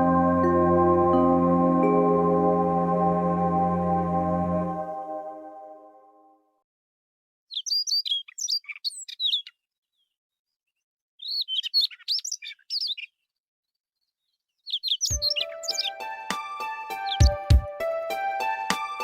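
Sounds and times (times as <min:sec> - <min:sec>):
music: 0:00.0 - 0:06.5, 0:15.1 - 0:19.0
songbird warbling: 0:14.7 - 0:16.0.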